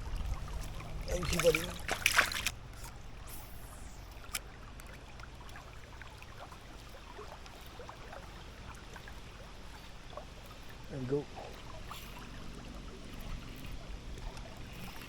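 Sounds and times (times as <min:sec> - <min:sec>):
river water rushing: 0:00.0 - 0:03.2.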